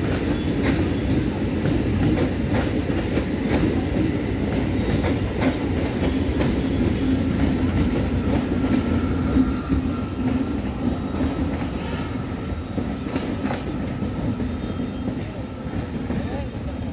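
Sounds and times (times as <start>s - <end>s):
wheels clicking over rail joints: 0.0s - 11.8s
train rumbling past: 0.0s - 16.9s.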